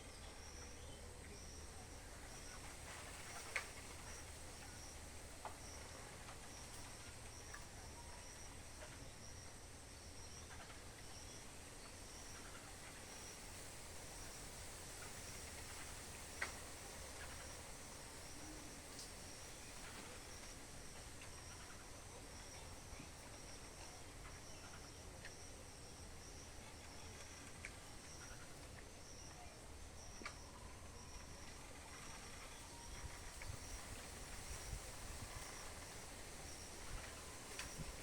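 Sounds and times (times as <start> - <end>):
insect chirp: 0.0 - 38.0.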